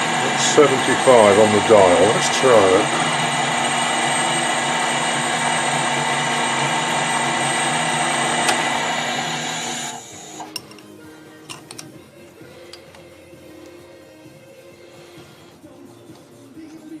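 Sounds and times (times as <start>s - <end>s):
metal lathe motor whine: 0.0s - 10.8s.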